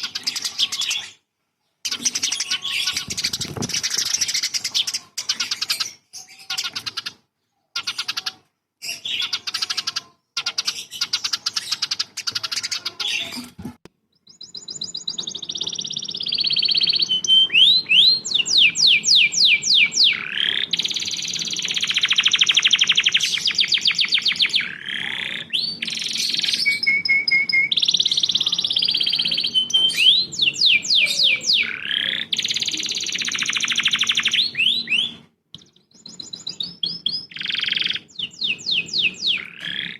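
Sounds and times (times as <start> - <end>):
bird chirping: 0.0 - 39.9
bird trilling and whistling: 1.9 - 7.2, 14.3 - 35.3, 35.9 - 39.9.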